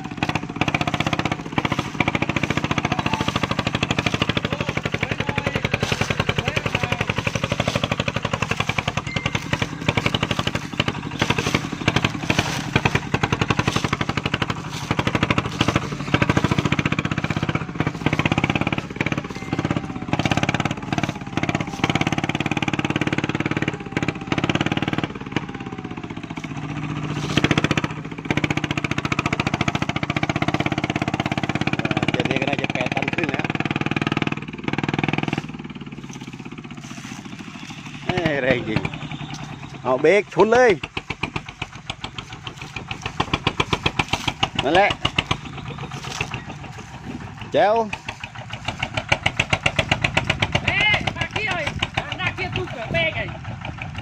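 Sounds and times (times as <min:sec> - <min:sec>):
diesel engine putting: 0:00.0 - 0:54.0
knocks and rattles: 0:38.2 - 0:54.0.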